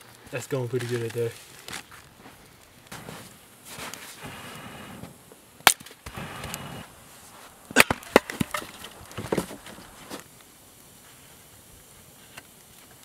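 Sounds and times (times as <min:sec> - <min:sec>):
firewood cracking: 0:00.0 - 0:13.0
scraping and rustling: 0:00.4 - 0:05.2.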